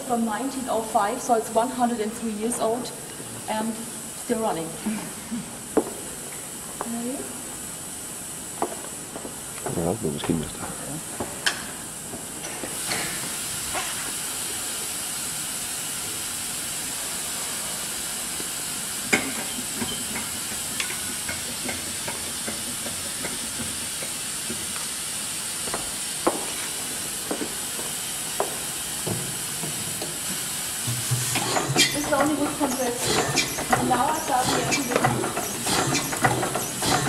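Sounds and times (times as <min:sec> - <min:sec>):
compressed air hissing: 0:11.6 - 0:37.0.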